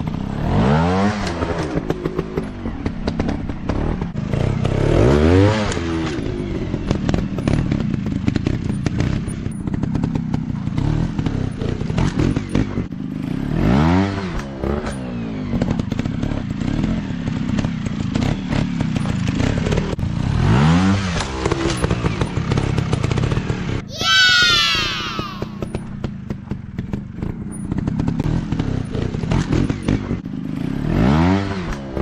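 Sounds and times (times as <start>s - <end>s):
dirt bike engine revving: 10.8s - 15.0s, 27.8s - 32.0s.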